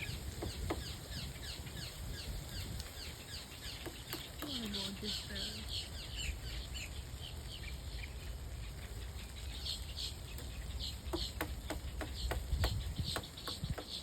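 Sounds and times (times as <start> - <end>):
woodpecker tapping on wood: 0.0 - 1.3, 3.6 - 5.1, 10.3 - 14.0
birds chirping: 0.0 - 14.0.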